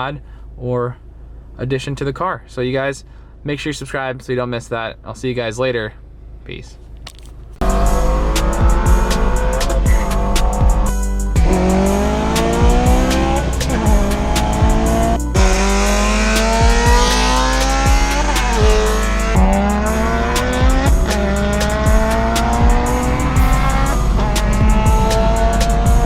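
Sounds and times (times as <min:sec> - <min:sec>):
car engine accelerating: 0:06.8 - 0:26.0
music playing: 0:07.6 - 0:26.0.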